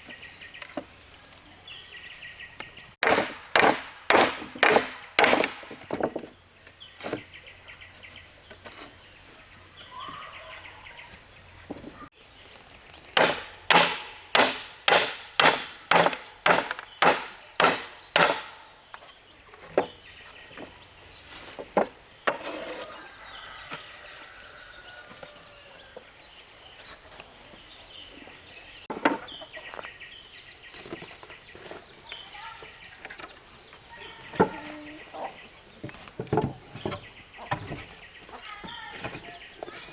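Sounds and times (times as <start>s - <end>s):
tool striking wood: 3.0s - 6.3s, 13.2s - 18.6s.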